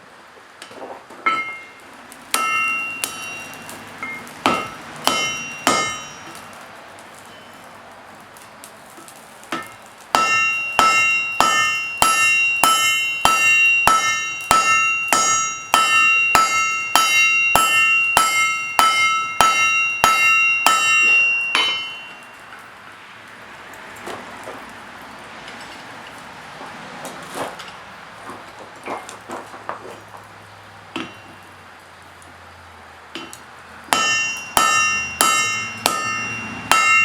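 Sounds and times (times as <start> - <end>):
hammer striking metal on anvil: 1.2 - 6.6, 9.5 - 22.6, 30.9 - 31.5, 33.2 - 37.0.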